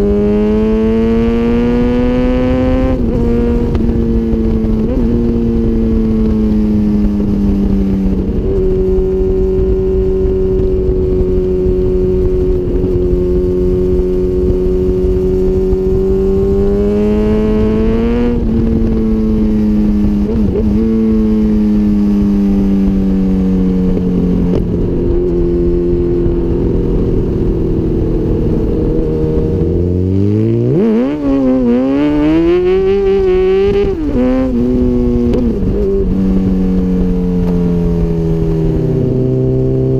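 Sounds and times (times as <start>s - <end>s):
motorcycle engine revving: 0.0s - 39.9s
steady rushing noise: 0.0s - 39.9s.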